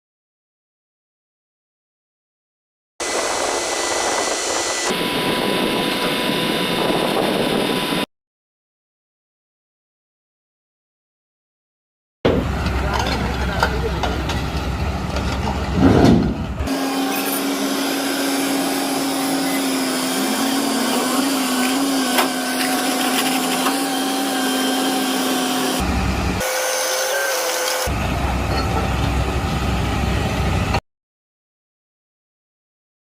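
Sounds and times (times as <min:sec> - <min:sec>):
backhoe engine and hydraulics whining: 0:03.0 - 0:08.1, 0:12.3 - 0:30.8.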